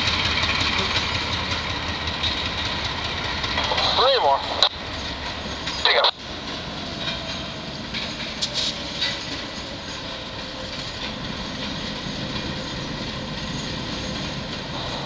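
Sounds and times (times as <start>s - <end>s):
diesel locomotive rumbling: 0.0s - 15.0s.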